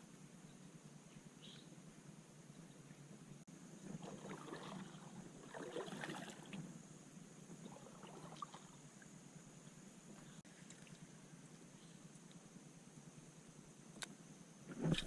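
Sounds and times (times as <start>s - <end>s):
paddle splashing and dripping: 3.9s - 6.6s, 7.6s - 8.8s.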